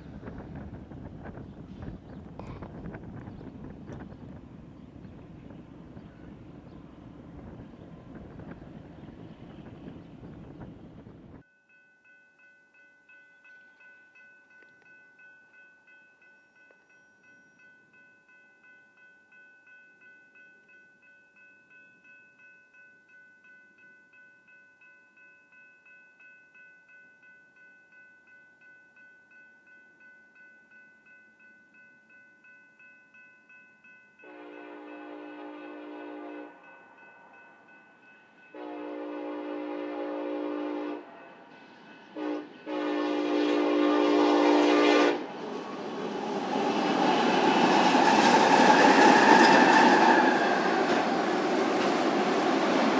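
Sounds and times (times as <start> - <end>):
crossing warning bell ringing: 0.0 - 11.2, 44.8 - 52.9
locomotive horn blasts: 34.3 - 36.6, 38.6 - 41.4, 42.1 - 46.3.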